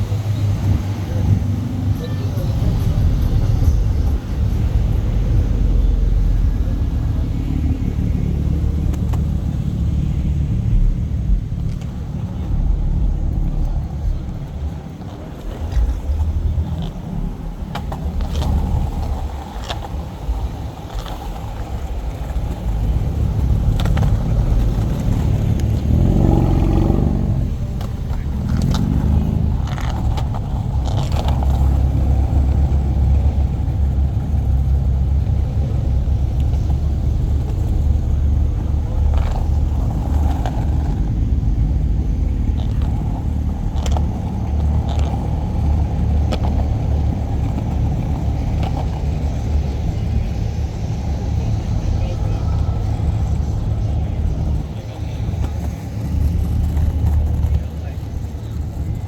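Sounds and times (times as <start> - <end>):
car engine exhaust drone: 0.0 - 59.0.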